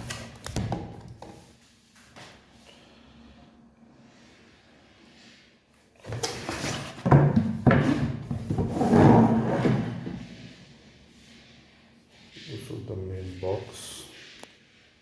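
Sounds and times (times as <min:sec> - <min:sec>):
cardboard boxes scraping: 0:06.5 - 0:10.8.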